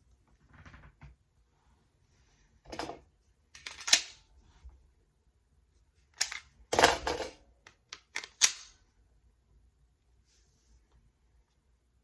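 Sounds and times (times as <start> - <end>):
pistol clicks: 8.0 - 8.8.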